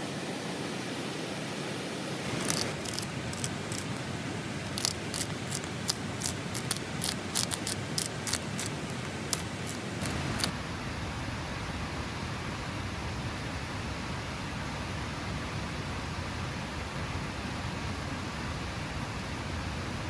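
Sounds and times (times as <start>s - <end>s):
rain hissing: 2.0s - 20.0s
sharp clicks or snips: 2.3s - 10.5s.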